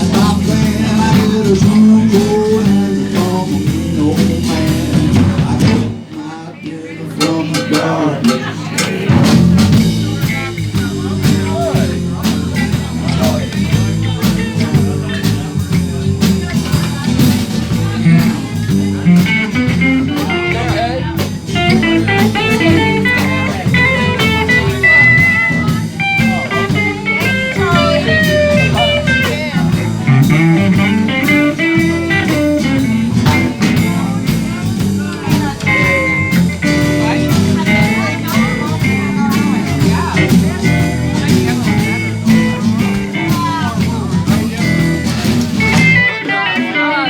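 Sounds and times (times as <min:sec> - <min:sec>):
bass guitar: 0:00.0 - 0:47.0
drums: 0:00.0 - 0:47.0
lead guitar solo: 0:19.0 - 0:34.2, 0:35.4 - 0:43.9, 0:44.6 - 0:47.0.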